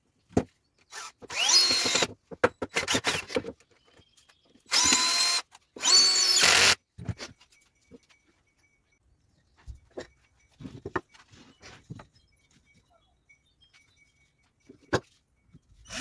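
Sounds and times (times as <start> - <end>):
power drill whining: 0.9 - 2.1, 4.7 - 6.8.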